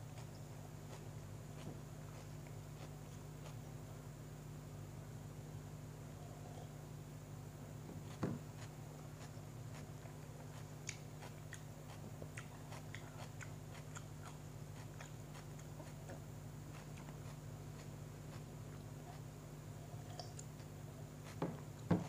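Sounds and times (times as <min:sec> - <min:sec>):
chewing bread sandwich: 0:00.0 - 0:04.0, 0:08.0 - 0:21.6
low room hum: 0:00.0 - 0:22.0.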